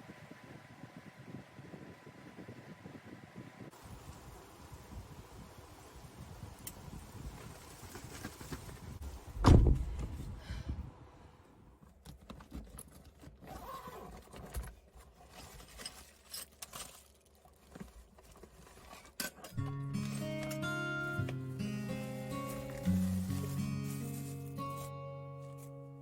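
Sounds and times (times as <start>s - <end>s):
heavy thump: 9.4s - 10.2s.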